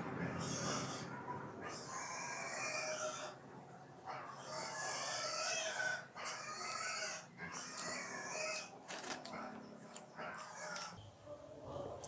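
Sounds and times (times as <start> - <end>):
wavering animal calls: 0.2 - 3.4
chewing: 7.4 - 11.0.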